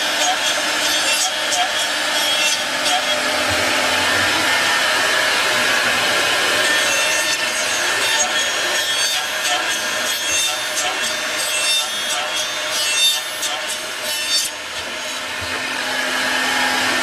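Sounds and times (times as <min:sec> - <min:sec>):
machine cutting wood: 0:00.0 - 0:17.0.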